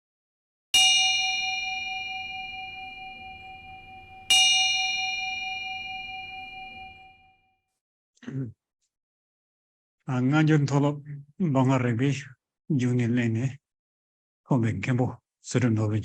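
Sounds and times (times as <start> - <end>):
metal bell ringing: 0.8 - 7.2.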